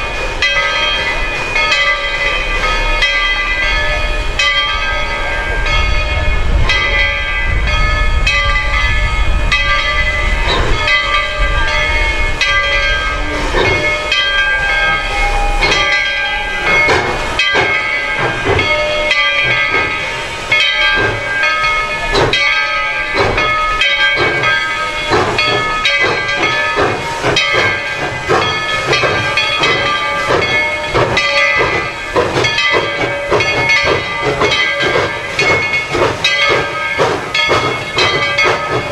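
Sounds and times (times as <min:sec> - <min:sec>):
steam hissing: 0:00.0 - 0:38.9
steam locomotive exhaust chuffs: 0:00.0 - 0:38.9
low rumble: 0:03.2 - 0:16.2.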